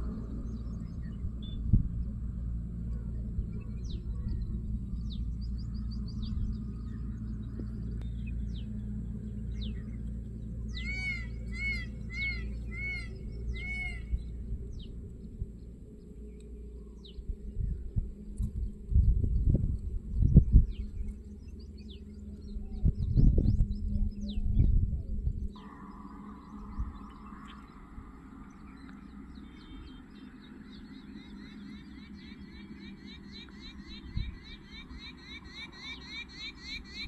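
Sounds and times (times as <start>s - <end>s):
steady low rumble: 0.0s - 37.0s
arching bird calls: 2.5s - 16.6s, 25.6s - 37.0s.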